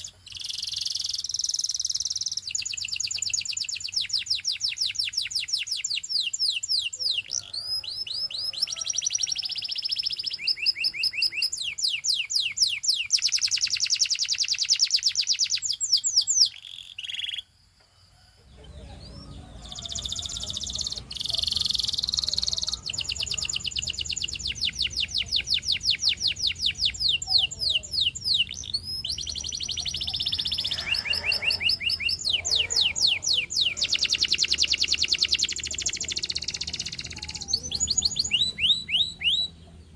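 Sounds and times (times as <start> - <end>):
canary singing trills: 0.0 - 17.6, 18.2 - 39.9.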